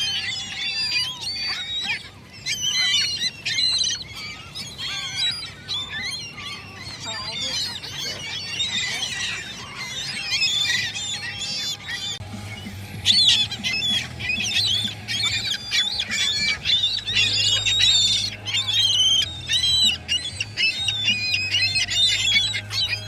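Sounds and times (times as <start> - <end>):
gulls calling: 0.0 - 23.0.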